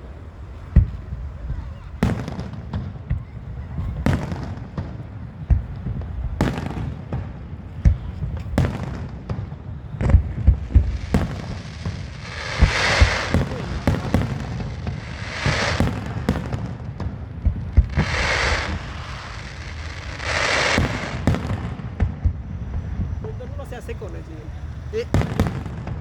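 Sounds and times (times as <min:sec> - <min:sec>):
hissing firework crackle: 0:00.0 - 0:26.0
firework bangs: 0:00.6 - 0:26.0.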